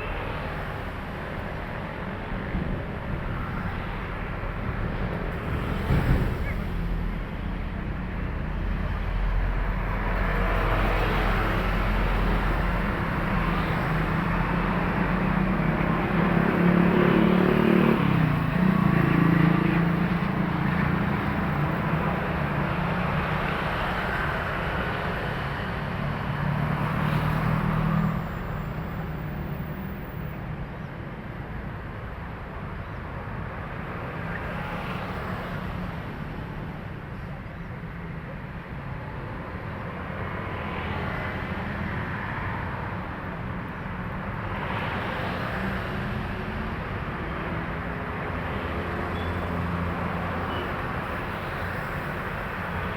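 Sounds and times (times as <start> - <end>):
trucks passing: 0.0 - 52.9.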